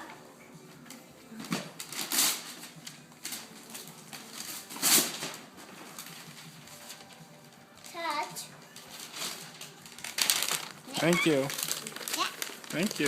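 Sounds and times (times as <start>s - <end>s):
packaging rustling and crackling: 1.4s - 8.0s, 8.6s - 13.0s.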